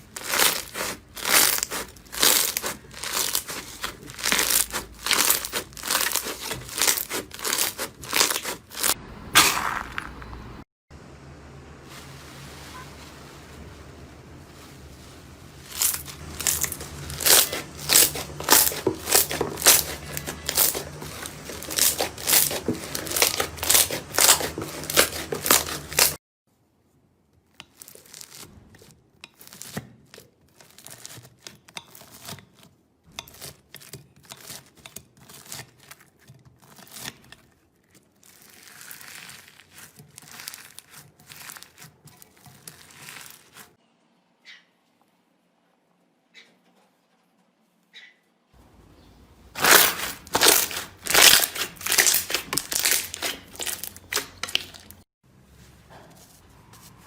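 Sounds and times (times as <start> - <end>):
slime crackling by hand: 0.0 - 10.0, 14.6 - 26.2, 27.6 - 32.3, 37.9 - 43.8, 49.5 - 55.0.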